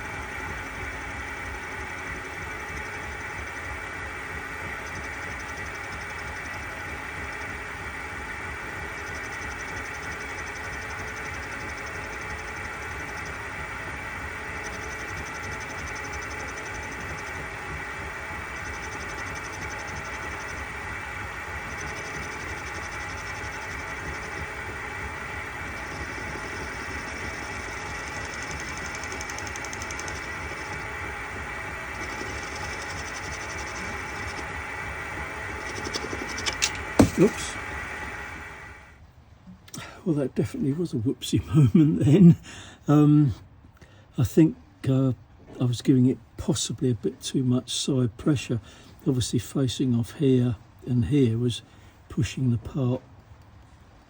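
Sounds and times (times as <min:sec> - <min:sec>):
cutting tool hiss: 0:00.0 - 0:38.6
metal lathe running: 0:00.0 - 0:38.9.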